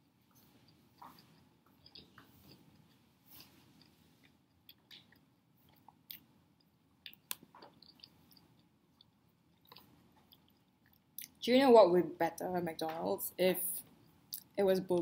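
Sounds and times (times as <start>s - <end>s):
chewing with mouth closed: 3.8s - 11.4s.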